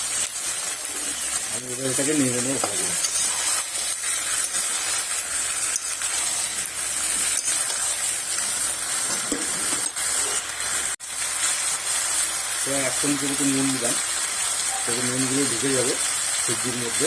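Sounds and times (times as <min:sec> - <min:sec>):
vegetables sizzling in oil: 0:00.0 - 0:17.0
spatula scraping pan: 0:00.5 - 0:10.5.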